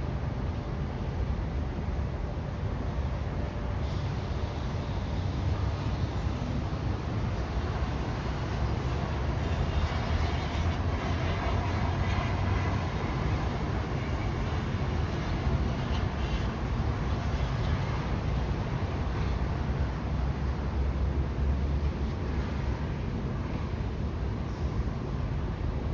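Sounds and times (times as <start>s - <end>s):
low outdoor rumble: 0.0s - 25.9s
hiss: 3.8s - 9.1s.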